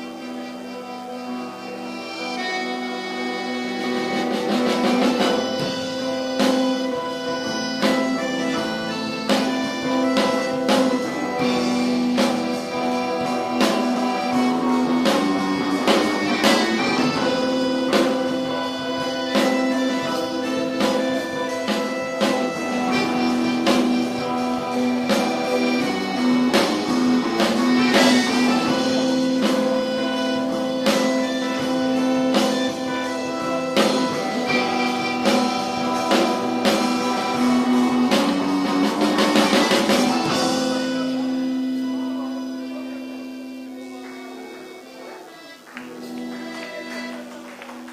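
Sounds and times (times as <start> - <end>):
rock band playing: 0.0 - 47.9.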